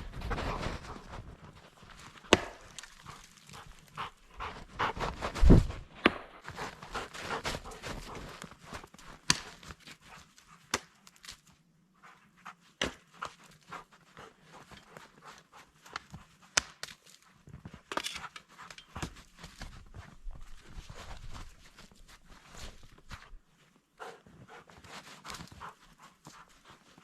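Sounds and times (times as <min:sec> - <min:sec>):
footsteps crunching in snow: 0:00.0 - 0:09.9, 0:19.0 - 0:23.4.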